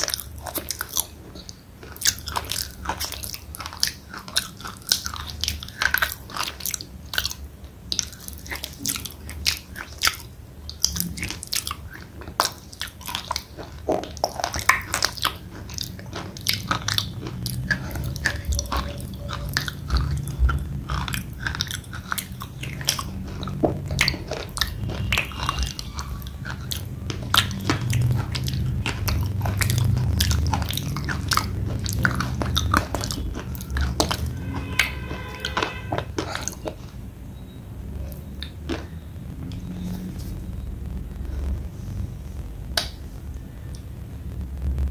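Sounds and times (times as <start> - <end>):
low muffled rumble: 36.8 - 44.9.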